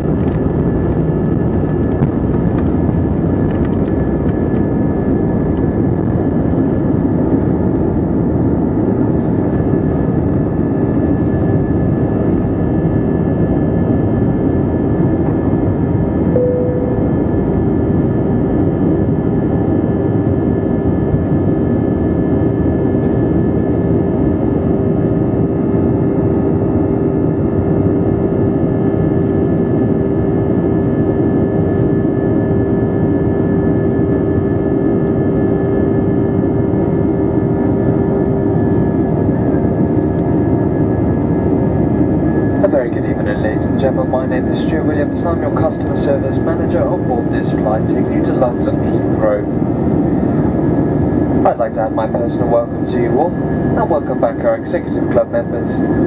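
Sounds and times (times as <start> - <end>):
airliner cabin engine roar: 0.0 - 56.0
constant low hum: 0.0 - 56.0
short faint tone: 16.3 - 17.6.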